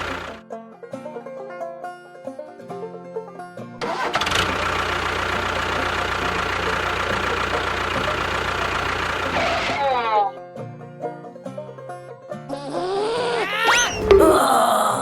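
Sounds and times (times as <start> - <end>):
engine running loud: 0.0 - 0.4, 3.8 - 10.1
banjo music: 0.0 - 12.6.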